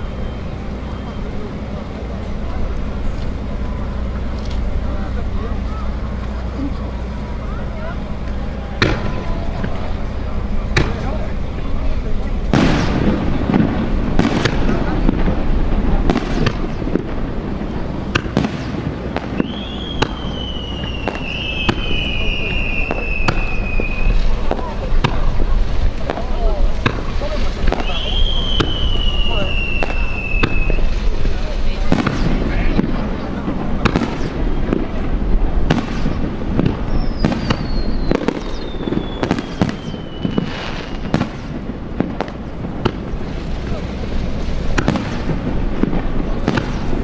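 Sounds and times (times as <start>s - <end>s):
high whistle sinking in pitch: 0.0s - 4.0s, 19.4s - 24.7s, 27.6s - 31.2s, 36.8s - 41.3s
fireworks bangs and pops: 0.0s - 47.0s
low rumble: 0.0s - 47.0s.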